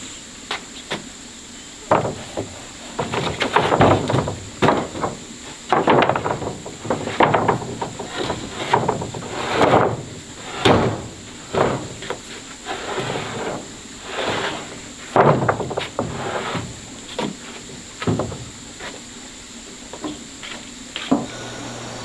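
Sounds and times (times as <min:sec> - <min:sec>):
wood knocking: 0:01.9 - 0:19.0
wood scraping: 0:01.9 - 0:19.2, 0:19.9 - 0:22.0.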